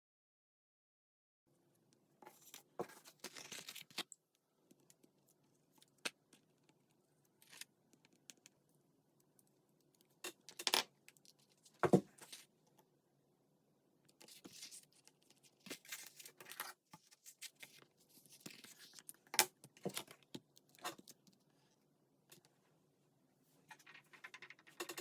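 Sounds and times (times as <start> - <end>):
paper rustling: 14.2 - 19.1.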